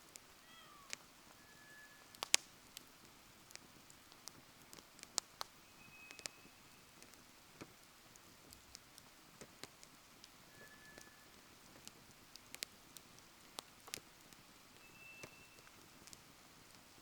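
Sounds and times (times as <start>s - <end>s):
wood fire crackling: 0.0s - 17.0s
thin whistle: 1.4s - 2.1s, 5.6s - 6.9s, 10.5s - 11.4s, 14.8s - 15.8s.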